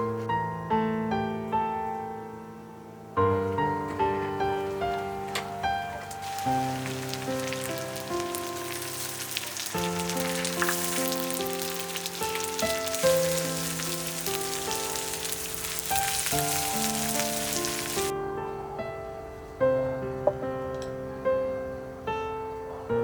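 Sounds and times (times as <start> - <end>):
gentle instrumental music: 0.0 - 23.0
steady hiss: 3.6 - 18.1.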